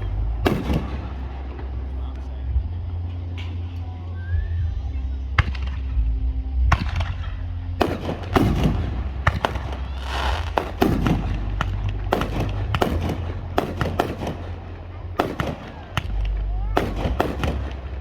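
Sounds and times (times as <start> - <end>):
fireworks bangs and explosions: 0.0 - 2.2, 6.8 - 18.0
fireworks crackling: 0.0 - 2.9, 6.8 - 18.0.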